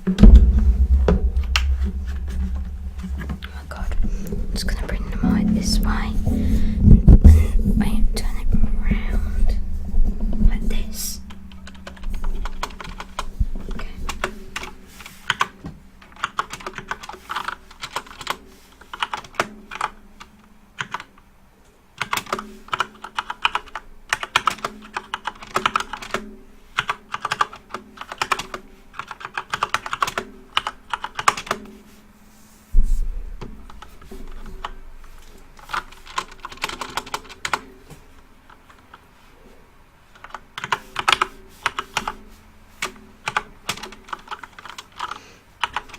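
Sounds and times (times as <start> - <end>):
dull thump: 0.0 - 7.8.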